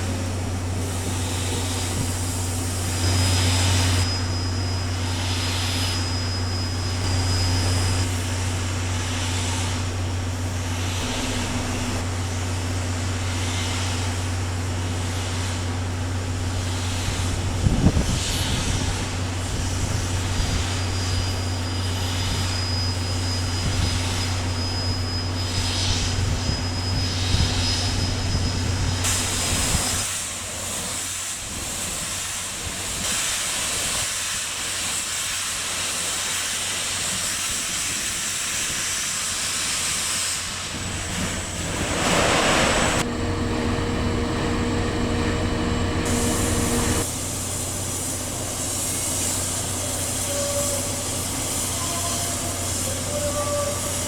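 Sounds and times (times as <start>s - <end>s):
steam locomotive hissing: 0.0s - 43.4s, 44.4s - 54.0s
low hum: 41.4s - 49.3s.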